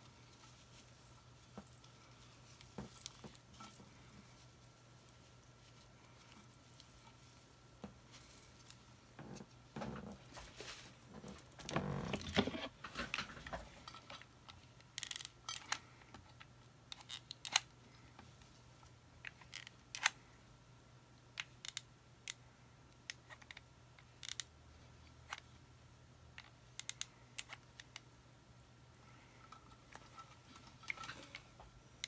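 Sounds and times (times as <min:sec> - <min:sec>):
craft materials rustling: 0:00.0 - 0:14.3.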